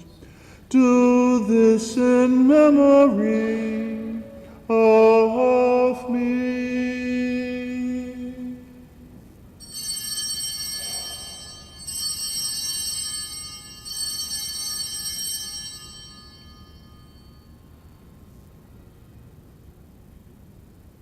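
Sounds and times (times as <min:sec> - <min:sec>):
priest chanting: 0:00.0 - 0:08.9, 0:09.8 - 0:14.5
altar bells ringing: 0:09.6 - 0:18.3.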